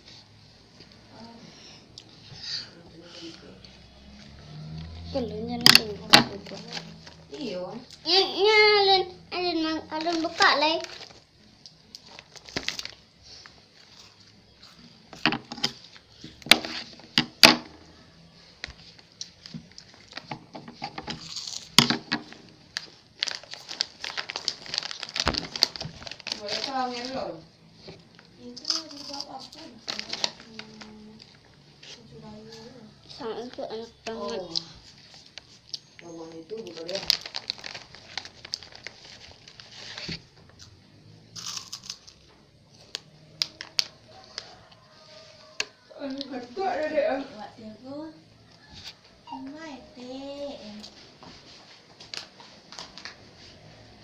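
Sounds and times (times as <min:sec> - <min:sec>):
packaging crinkling: 0:09.9 - 0:14.1, 0:21.1 - 0:27.2, 0:28.6 - 0:31.3, 0:36.5 - 0:40.6.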